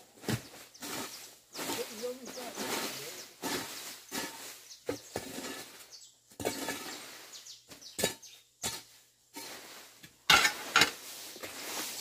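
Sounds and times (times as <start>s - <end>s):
hoe chopping and scraping soil: 0.0s - 12.0s.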